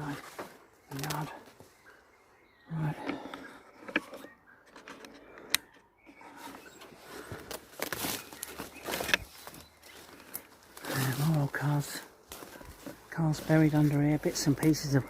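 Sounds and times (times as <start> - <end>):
footsteps rustling through undergrowth: 0.0 - 2.0, 6.2 - 15.0
twigs clicking and snapping: 0.0 - 2.0, 4.8 - 15.0.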